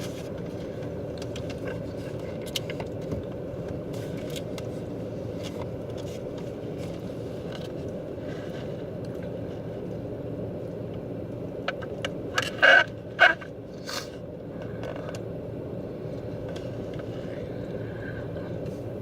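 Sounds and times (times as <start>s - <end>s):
car cabin low hum: 0.0s - 19.0s.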